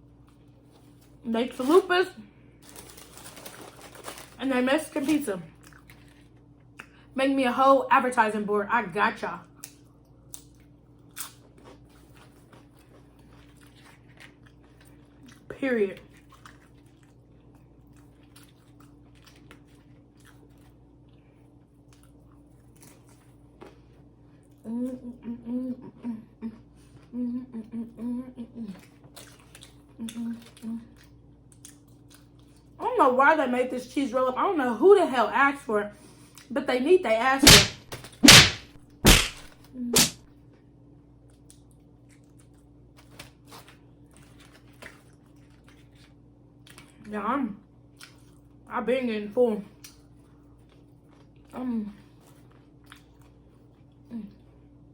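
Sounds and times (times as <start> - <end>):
crunchy eating noises: 0.0 - 7.2, 9.4 - 32.8, 37.4 - 40.2, 41.2 - 48.7, 49.6 - 54.9
person chewing food: 5.6 - 7.0, 9.6 - 15.5, 16.1 - 24.6, 28.8 - 32.7, 37.4 - 40.2, 41.3 - 46.9, 52.1 - 54.1
steady low hum: 37.0 - 40.2.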